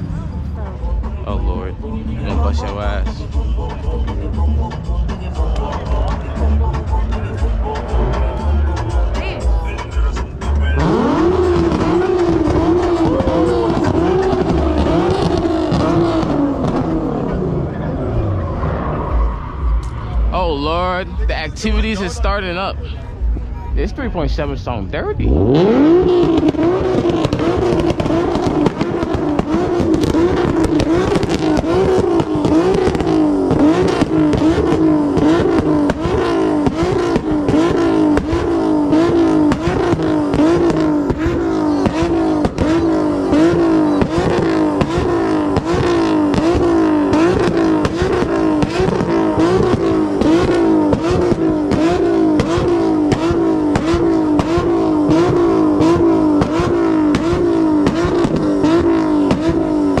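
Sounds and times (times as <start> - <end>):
car engine revving raspy exhaust: 0.0 - 60.0.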